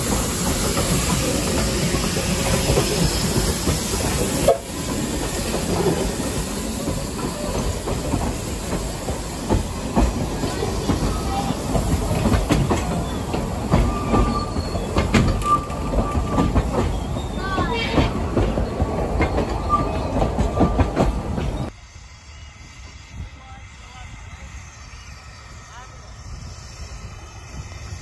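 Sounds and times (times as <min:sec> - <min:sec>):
train wheels rumbling and clicking: 0:00.0 - 0:21.8
steam locomotive hissing: 0:00.0 - 0:28.0
wheel squeals: 0:12.7 - 0:18.6, 0:19.2 - 0:21.7.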